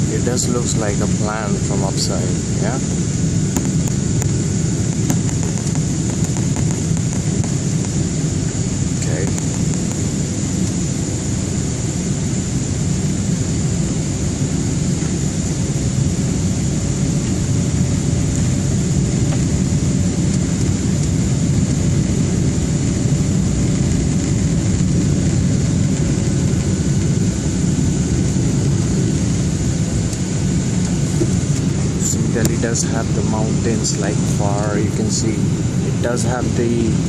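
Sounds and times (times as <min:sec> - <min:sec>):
airliner cabin engine roar: 0:00.0 - 0:37.0
thin high whine: 0:24.2 - 0:37.0.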